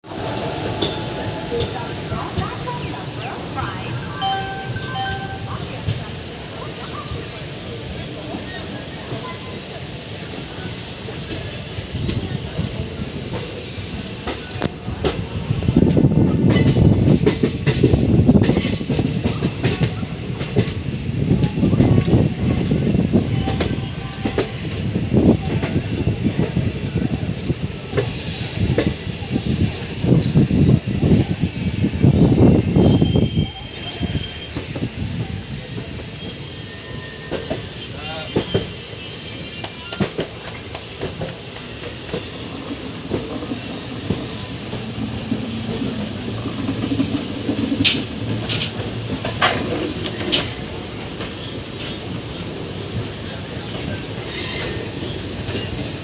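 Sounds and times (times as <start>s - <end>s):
train rumbling on track: 0.0s - 56.0s
wheels clattering on rails: 10.6s - 31.6s, 39.5s - 56.0s.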